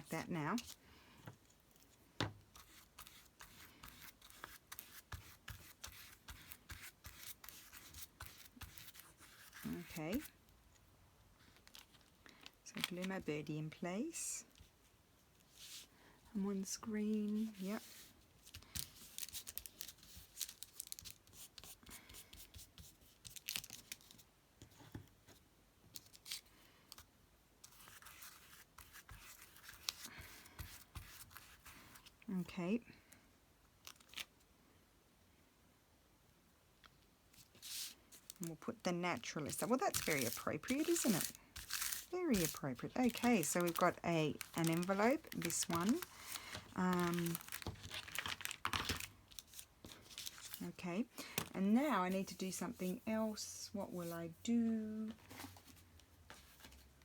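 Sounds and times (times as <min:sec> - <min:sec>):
paper rustling: 0:39.2 - 0:53.1
scissors snipping paper: 0:39.4 - 0:49.0.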